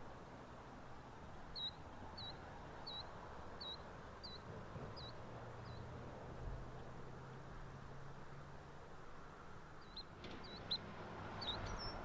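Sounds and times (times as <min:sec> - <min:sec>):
faint outdoor background noise: 0:00.0 - 0:12.0
small bird calling: 0:01.5 - 0:04.4, 0:09.8 - 0:12.0.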